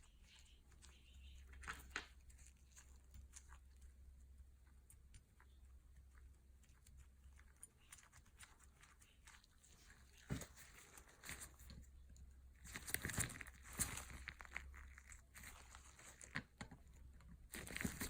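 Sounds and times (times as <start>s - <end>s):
scraping and rustling: 7.4s - 12.0s, 12.6s - 18.0s.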